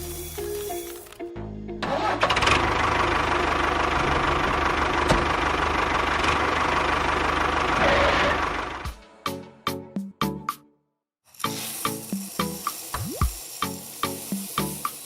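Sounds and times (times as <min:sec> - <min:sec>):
engine idling roughly: 0:01.9 - 0:08.8.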